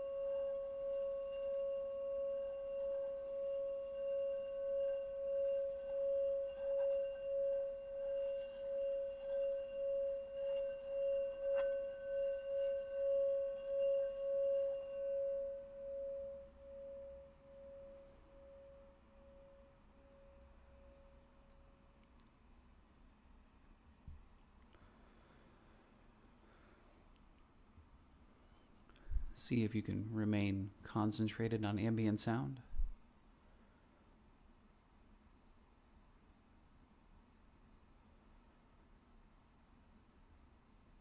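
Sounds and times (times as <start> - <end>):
singing bowl tone: 0.0 - 21.8.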